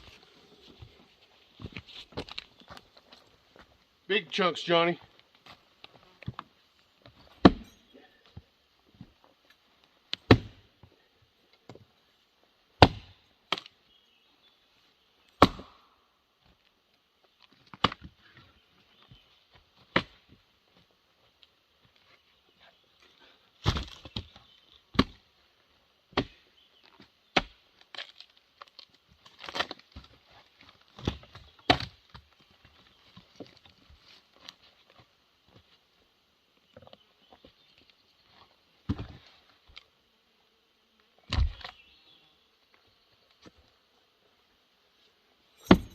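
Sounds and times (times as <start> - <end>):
firewood being struck: 7.4 - 7.8, 10.2 - 10.6, 12.8 - 13.6, 15.4 - 15.9, 45.6 - 45.9.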